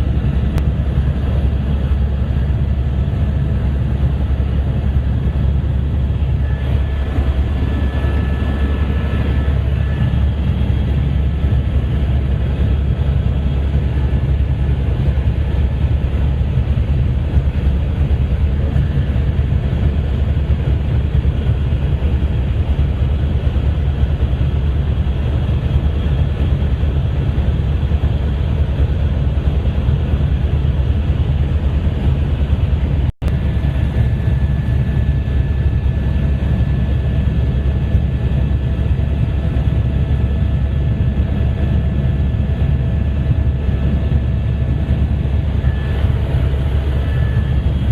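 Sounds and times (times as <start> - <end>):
helicopter rotor and engine drone: 0.0 - 47.9.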